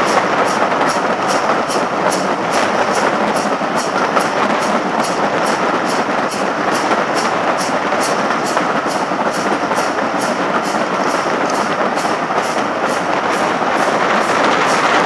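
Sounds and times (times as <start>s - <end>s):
steam train rumbling: 0.0s - 15.0s.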